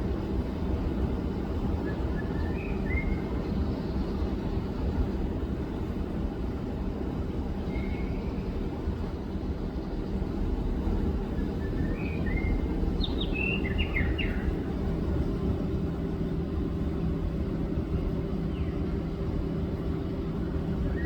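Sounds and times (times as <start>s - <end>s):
low mechanical hum: 0.0s - 21.0s
bird whistling: 11.8s - 14.5s.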